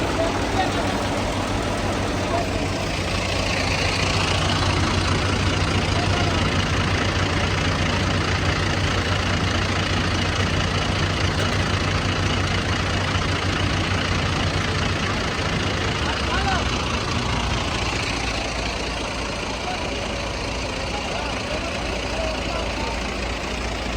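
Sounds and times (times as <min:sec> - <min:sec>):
machinery rushing noise: 0:00.0 - 0:07.6
combine harvester engine hum: 0:00.0 - 0:23.9.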